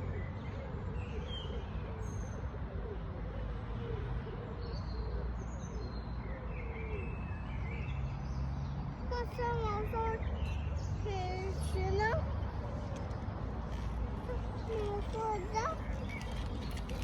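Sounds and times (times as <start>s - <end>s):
birds chirping: 9.1s - 17.0s.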